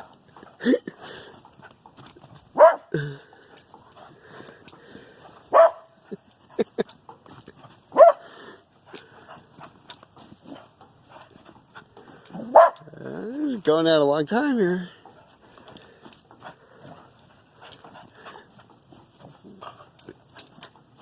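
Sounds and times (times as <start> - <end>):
dog barking sharply: 2.6 - 2.9, 5.5 - 5.9, 8.0 - 8.2, 12.5 - 12.8.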